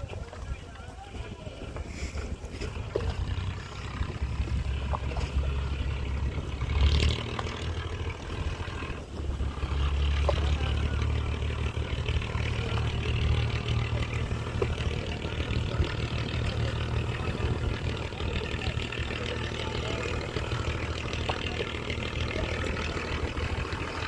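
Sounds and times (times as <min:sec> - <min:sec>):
boat engine droning: 0:00.0 - 0:24.0
water noise: 0:00.0 - 0:24.0
wind: 0:00.0 - 0:24.0.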